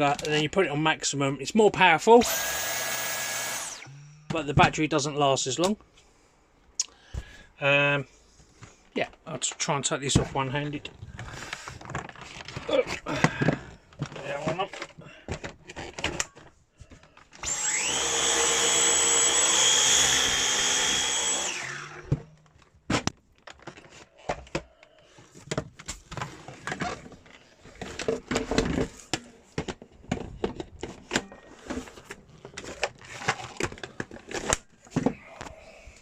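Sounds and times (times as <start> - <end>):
vacuum motor whining: 2.2 - 4.2, 17.4 - 22.3
plastic parts clicking and knocking: 8.6 - 17.5, 22.0 - 35.6.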